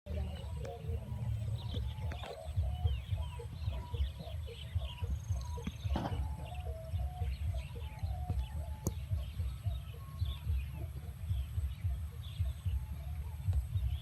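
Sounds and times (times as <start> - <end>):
birds chirping: 0.1 - 14.0
low uneven rumble: 0.1 - 14.0.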